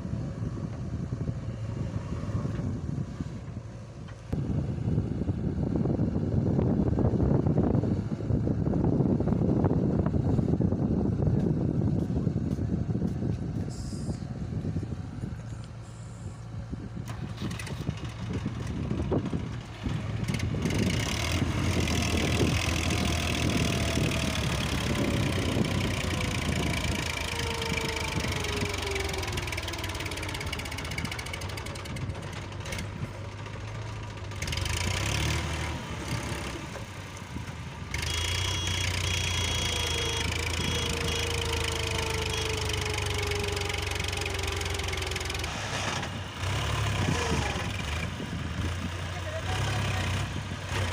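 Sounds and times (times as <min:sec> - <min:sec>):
tractor diesel engine knocking: 0:16.4 - 0:45.5.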